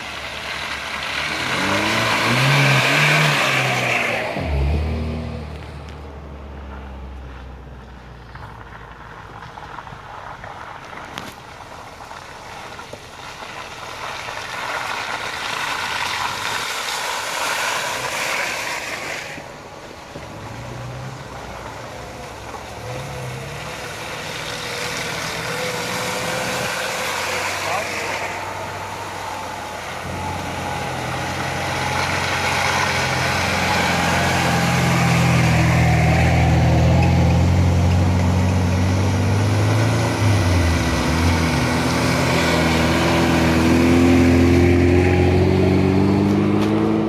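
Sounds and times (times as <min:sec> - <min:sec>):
off-road car engines in mud: 0:00.0 - 0:47.0
engine revving: 0:00.9 - 0:05.6, 0:22.7 - 0:47.0.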